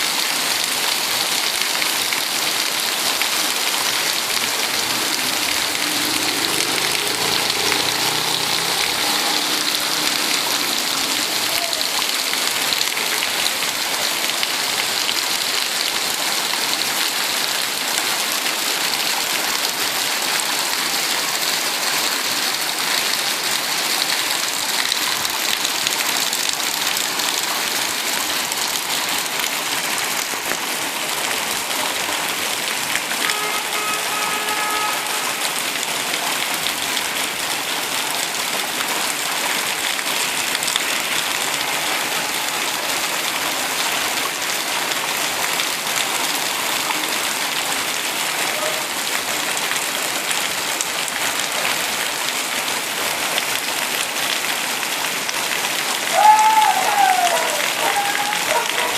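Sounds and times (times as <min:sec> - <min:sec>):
heavy rain hissing: 0:00.0 - 0:58.9
faint pitched tone: 0:03.6 - 0:12.4.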